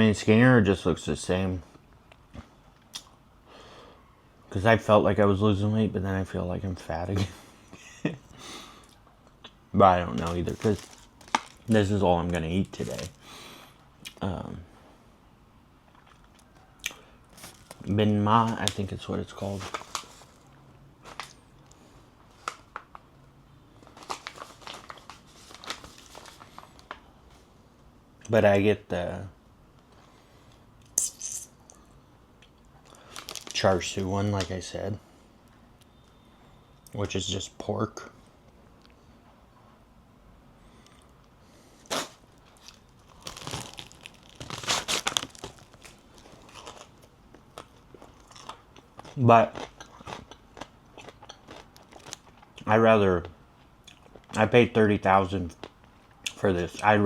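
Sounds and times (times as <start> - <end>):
wrapper crinkling: 9.9 - 13.2, 17.3 - 21.4, 22.3 - 23.1, 23.8 - 27.1, 32.8 - 34.6, 41.8 - 52.4.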